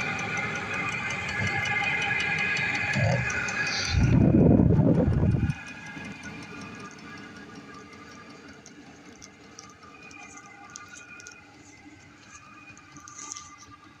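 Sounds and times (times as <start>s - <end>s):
heater humming: 0.0s - 14.0s
faint ticks: 7.8s - 13.9s.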